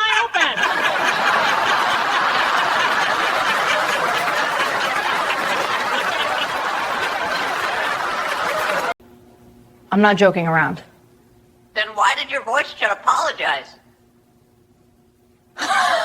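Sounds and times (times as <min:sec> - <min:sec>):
crowd laughing: 0:00.3 - 0:09.0.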